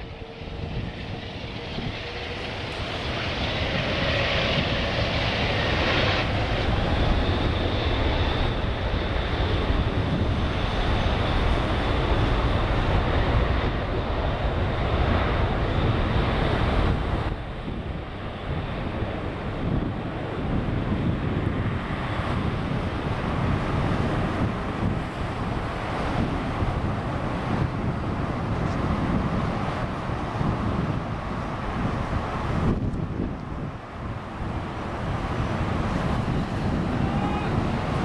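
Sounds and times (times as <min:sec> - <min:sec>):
jet engines roaring: 0:00.0 - 0:38.0.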